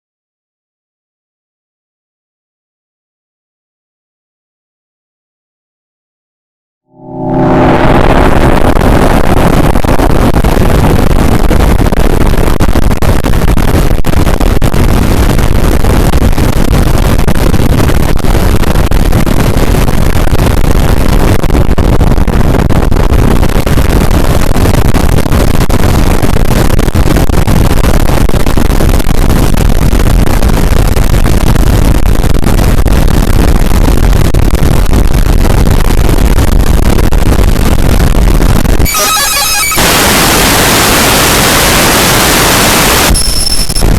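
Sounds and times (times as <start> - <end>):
harsh distorted noise music: 7.0 - 10.6, 38.9 - 41.7.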